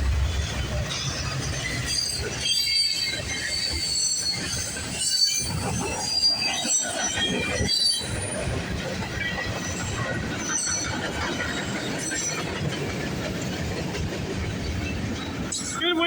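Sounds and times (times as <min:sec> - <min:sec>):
train wheels rumbling on rail: 0:00.0 - 0:16.0
high-pitched wheel squeals: 0:01.7 - 0:08.5.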